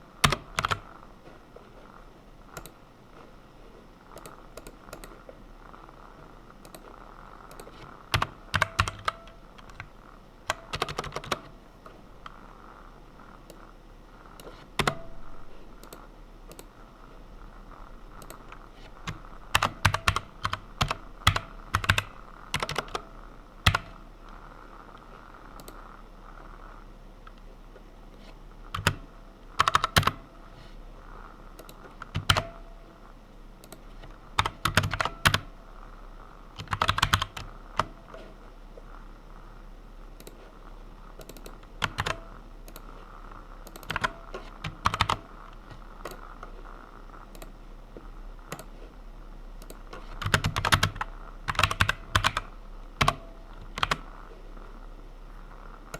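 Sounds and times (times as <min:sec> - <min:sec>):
faint steady hum: 0:00.0 - 0:55.9
computer keyboard typing: 0:00.2 - 0:01.0, 0:02.5 - 0:02.8, 0:04.1 - 0:12.6, 0:13.4 - 0:16.8, 0:18.0 - 0:26.0, 0:28.2 - 0:30.3, 0:31.1 - 0:32.8, 0:33.6 - 0:35.6, 0:36.6 - 0:38.3, 0:40.2 - 0:40.5, 0:41.2 - 0:46.5, 0:47.3 - 0:47.6, 0:48.5 - 0:48.9, 0:49.6 - 0:54.3.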